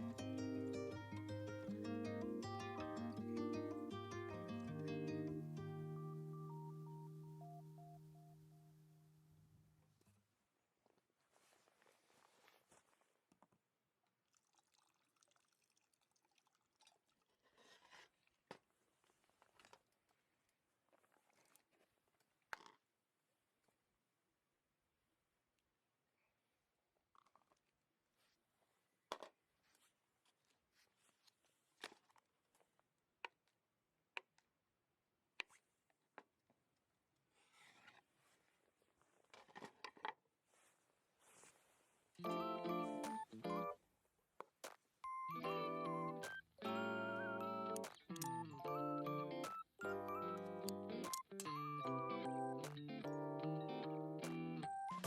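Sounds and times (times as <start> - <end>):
soft rustle: 10.9 - 13.5, 28.1 - 32.7, 37.2 - 39.8, 40.4 - 42.2.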